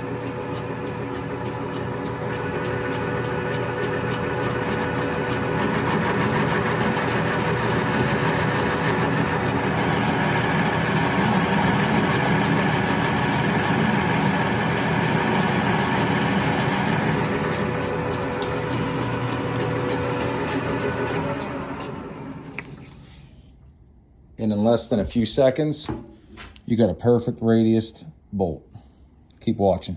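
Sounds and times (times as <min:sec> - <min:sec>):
metal lathe humming and whining: 0:00.3 - 0:22.6.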